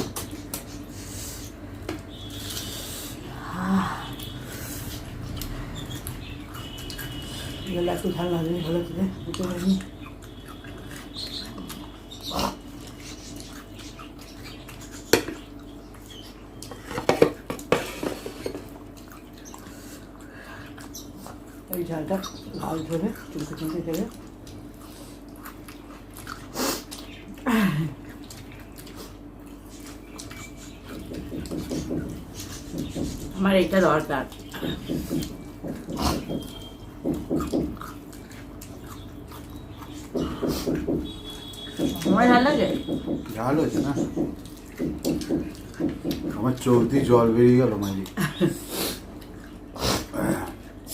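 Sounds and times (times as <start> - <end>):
person chewing food: 0.0 - 7.7, 8.6 - 33.4, 34.2 - 50.9
dishes knocking: 16.9 - 18.6.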